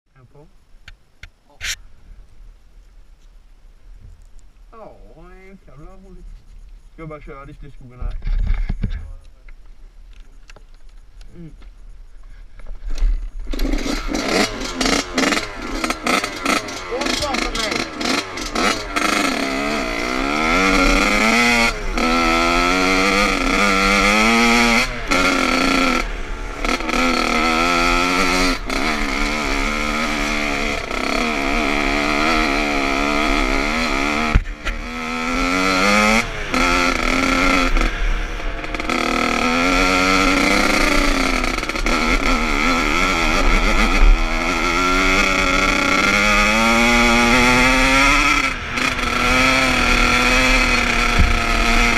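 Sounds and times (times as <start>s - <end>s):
motocross bike engine revving: 13.1s - 51.9s.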